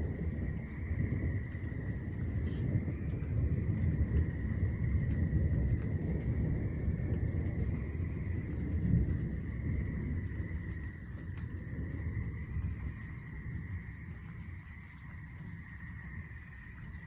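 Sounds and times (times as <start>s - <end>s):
distant thunder rumble: 0.0s - 17.0s
night insects trilling: 0.0s - 17.0s.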